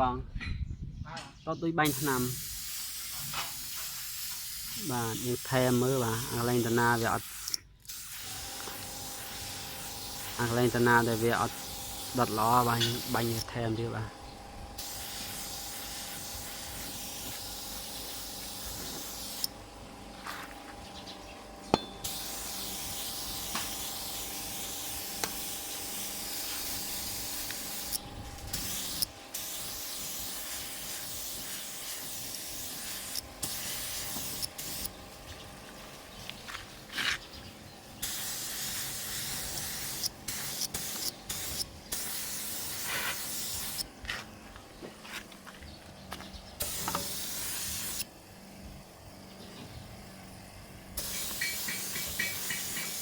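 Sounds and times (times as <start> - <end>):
spray gun hissing: 1.8 - 19.6, 22.0 - 36.1, 38.0 - 44.4, 46.6 - 53.0.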